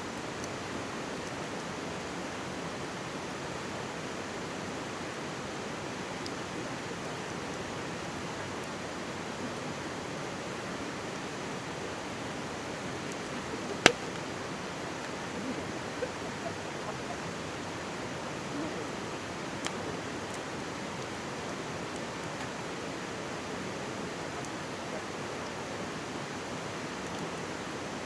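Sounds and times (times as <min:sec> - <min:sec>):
stream babbling: 0:06.4 - 0:28.0
campfire popping and crackling: 0:12.0 - 0:17.2.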